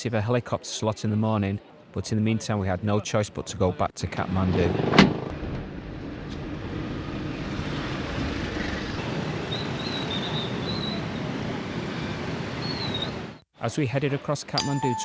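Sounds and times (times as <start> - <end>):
faint wavering high tone: 14.6 - 15.0.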